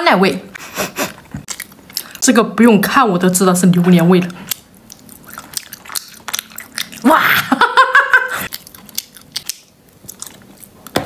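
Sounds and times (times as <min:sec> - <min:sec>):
person chewing gummy candies: 0:01.2 - 0:02.2, 0:04.3 - 0:07.5, 0:08.4 - 0:11.0.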